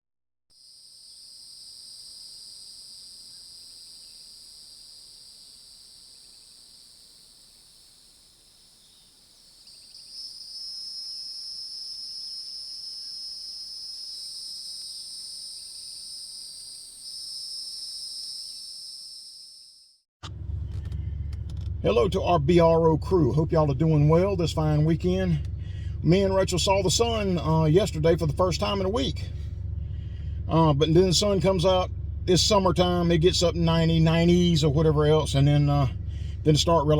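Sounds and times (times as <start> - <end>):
crickets chirping: 0.5 - 20.0.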